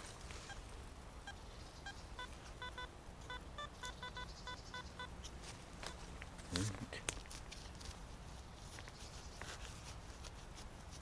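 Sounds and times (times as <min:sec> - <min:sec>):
metal detector beeping: 0:01.2 - 0:06.0.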